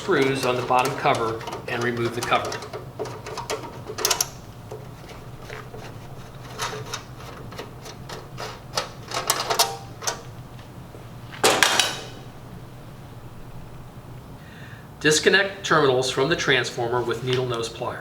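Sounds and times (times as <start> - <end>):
metal clatter: 0.0 - 10.4
screwdriver clicking on sheet metal: 0.0 - 10.4.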